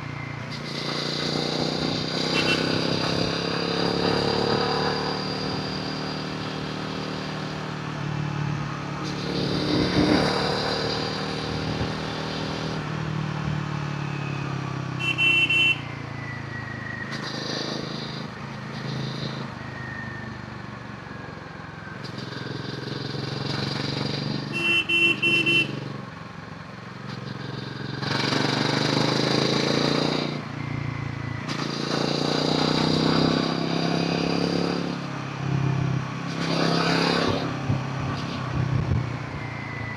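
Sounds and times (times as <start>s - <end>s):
motorcycle engine revving: 0.0s - 19.9s, 21.8s - 26.2s, 26.8s - 39.9s
vehicle horn honking: 2.2s - 2.9s, 15.0s - 15.9s, 24.5s - 25.8s.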